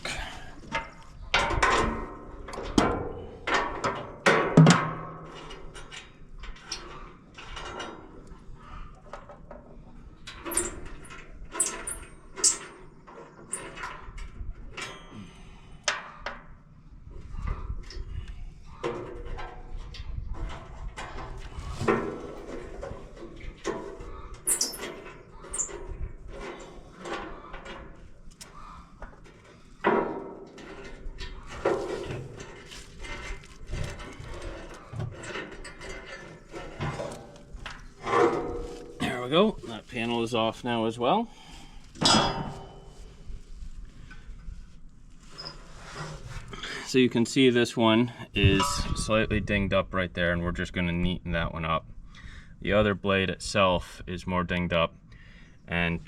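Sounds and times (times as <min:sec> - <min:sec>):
metal clanks of tools and bolts: 0:00.7 - 0:08.3, 0:10.3 - 0:16.4, 0:18.8 - 0:28.5, 0:29.2 - 0:39.2, 0:42.0 - 0:42.9.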